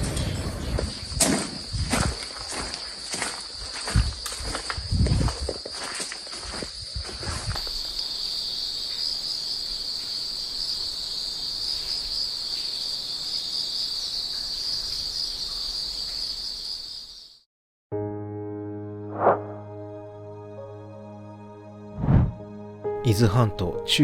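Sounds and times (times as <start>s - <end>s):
footsteps: 0.0s - 7.9s
insects chirring: 0.0s - 17.4s.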